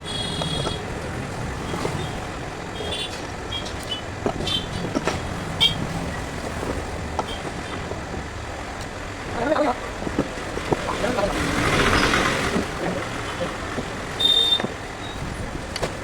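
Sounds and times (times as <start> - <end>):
street traffic noise: 0.0 - 16.0
sharp clicks and knocks: 3.0 - 5.8.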